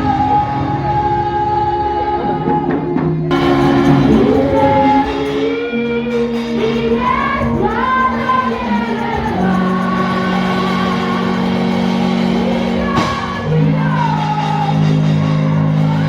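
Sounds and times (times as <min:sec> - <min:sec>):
gospel voices singing: 0:03.3 - 0:16.0
held instrumental notes: 0:03.3 - 0:16.0.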